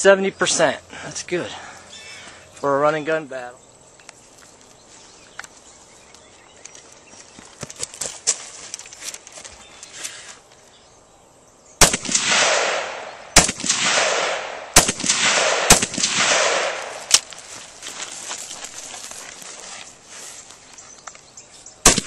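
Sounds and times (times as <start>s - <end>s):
rifle shots with long echo: 11.8s - 17.3s.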